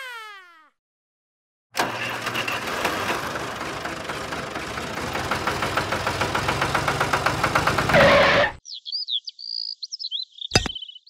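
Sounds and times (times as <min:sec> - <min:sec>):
tractor engine knocking: 0:01.8 - 0:08.0.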